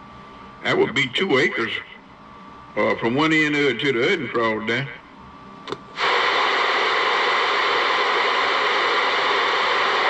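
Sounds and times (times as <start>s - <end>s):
radio static hiss: 5.9s - 10.0s.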